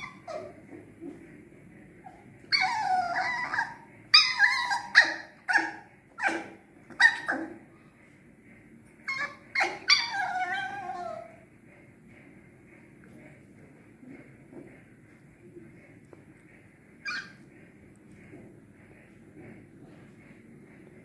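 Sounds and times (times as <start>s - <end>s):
puppy yipping: 0.0s - 0.7s, 2.1s - 7.6s, 9.0s - 11.3s, 17.0s - 17.4s
puppy whining: 0.0s - 1.1s, 2.0s - 7.6s, 8.8s - 11.4s, 17.0s - 17.5s.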